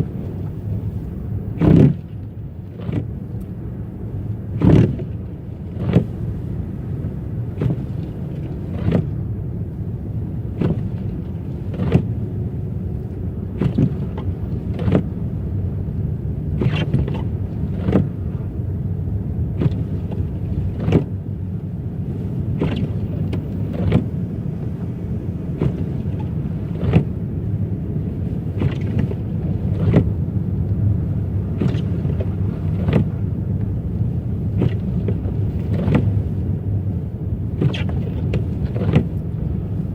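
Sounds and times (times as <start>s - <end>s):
car engine and road rumble: 0.0s - 39.9s
windshield wipers sweeping: 0.0s - 39.9s.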